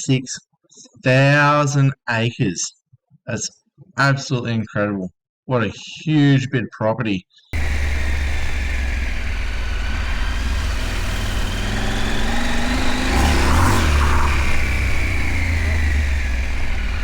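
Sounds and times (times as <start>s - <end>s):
motorcycle engine accelerating: 7.6s - 17.0s.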